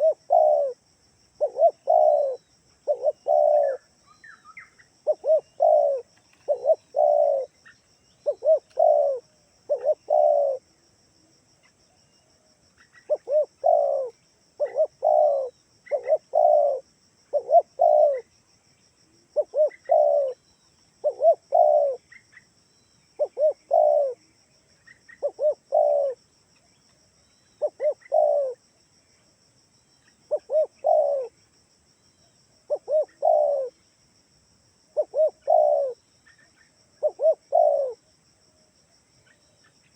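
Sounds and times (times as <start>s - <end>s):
dove cooing: 0.0s - 0.8s, 1.4s - 10.7s, 12.9s - 18.3s, 19.4s - 20.4s, 21.0s - 22.2s, 23.2s - 24.2s, 25.1s - 26.2s, 27.6s - 28.6s, 30.3s - 31.4s, 32.7s - 33.8s, 35.0s - 36.0s, 37.0s - 38.1s.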